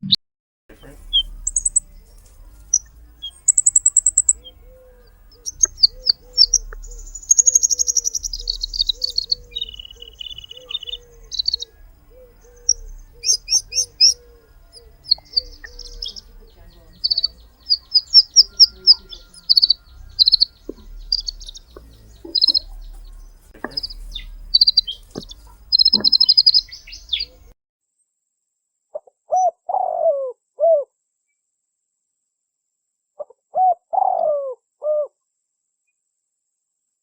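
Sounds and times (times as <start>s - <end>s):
songbird chirping: 0.0s - 27.6s
dove cooing: 0.7s - 27.5s, 29.3s - 30.9s, 33.2s - 35.1s.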